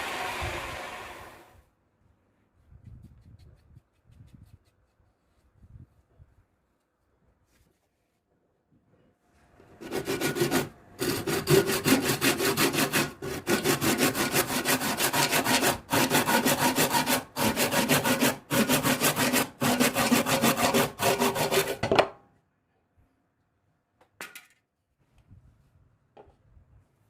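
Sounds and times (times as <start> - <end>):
hand saw cutting wood: 0.0 - 1.4, 9.8 - 22.0.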